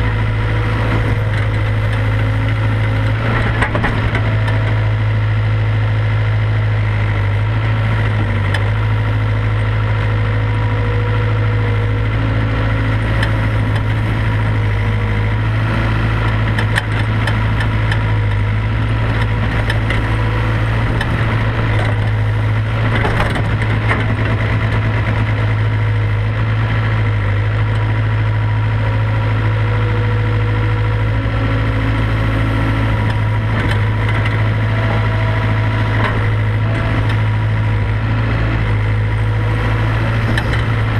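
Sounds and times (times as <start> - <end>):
excavator diesel engine running: 0.0 - 40.9
knocks and rattles: 16.3 - 25.6.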